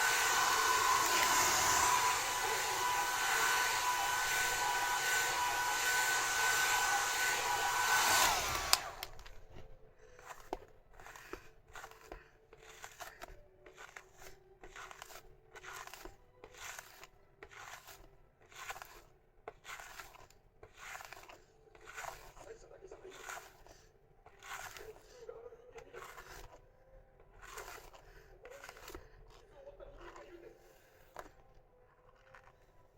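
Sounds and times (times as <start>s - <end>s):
hair dryer running: 0.0s - 9.4s.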